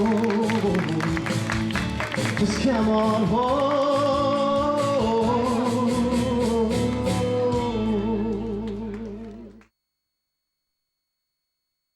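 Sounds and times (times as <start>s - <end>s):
person singing with vibrato: 0.0s - 1.5s, 2.2s - 9.6s
instrumental backing: 0.0s - 9.6s.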